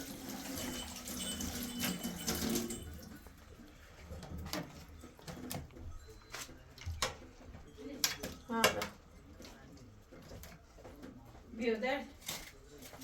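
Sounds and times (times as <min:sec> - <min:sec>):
water running and splashing: 0:00.0 - 0:03.2.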